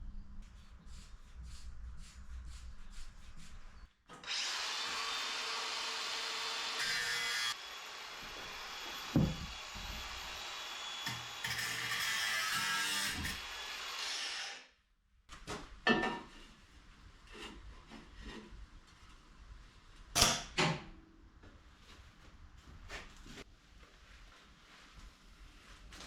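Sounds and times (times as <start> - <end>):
faint scraping strokes: 0.4 - 3.9
angle grinder cutting steel: 4.2 - 14.7
dull knock: 9.1 - 9.6.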